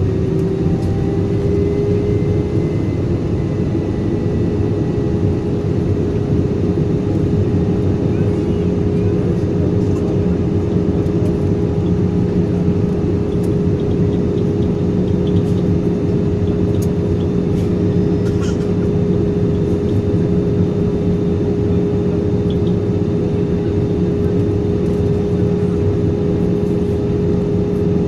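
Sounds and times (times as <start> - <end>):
airplane engine drone in flight: 0.0 - 28.0.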